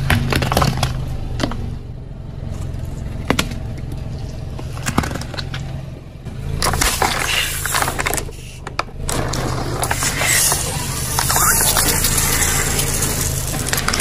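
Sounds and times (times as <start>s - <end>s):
car engine humming: 0.0s - 14.0s
objects crushed under tyres: 6.5s - 14.0s.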